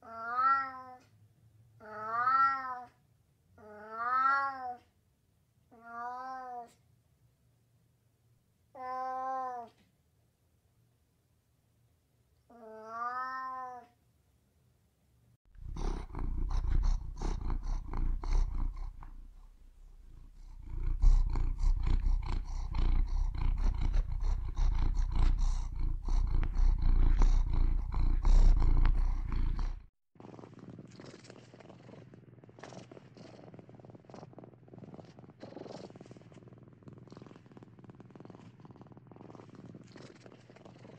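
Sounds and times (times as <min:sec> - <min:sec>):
cat purring: 0:15.5 - 0:40.9.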